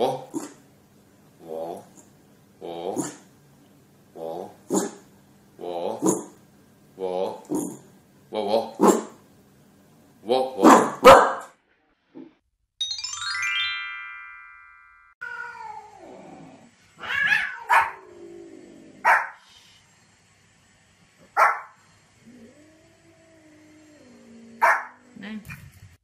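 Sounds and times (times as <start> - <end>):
dog barking: 4.7 - 5.0, 10.6 - 11.6, 17.4 - 18.0, 19.0 - 19.4, 21.3 - 21.8, 24.6 - 25.0
chiming transition sound: 12.8 - 15.2
cat meowing: 15.2 - 16.1, 17.0 - 18.0.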